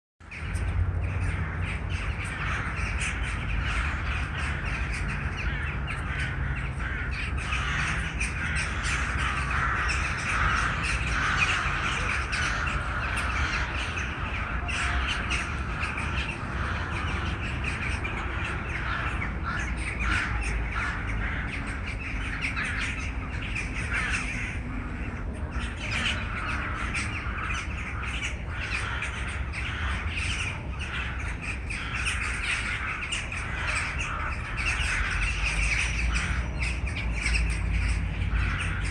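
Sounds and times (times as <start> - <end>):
flock of birds calling: 0.2 - 38.9.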